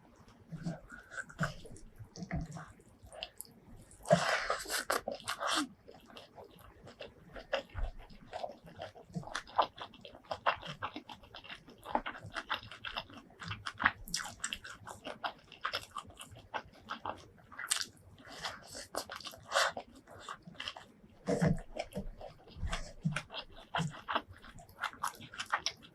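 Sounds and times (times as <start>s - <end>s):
chewing and biting: 0.3s - 25.9s.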